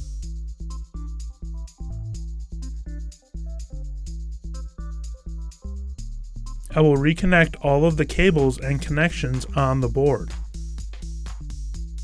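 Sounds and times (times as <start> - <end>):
electronic music with beat: 6.7 - 12.0.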